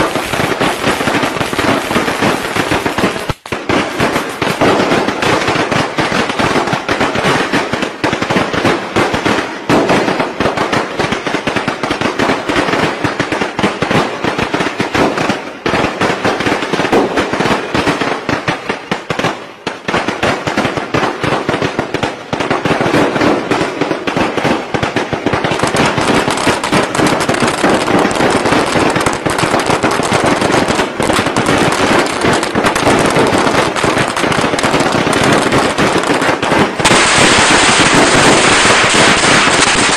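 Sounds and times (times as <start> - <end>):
firecrackers rattling: 0.0 - 39.9.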